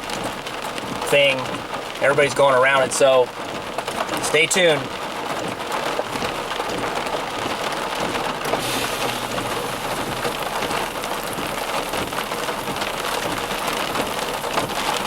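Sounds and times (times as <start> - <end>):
heavy rain on a car: 0.0 - 15.0.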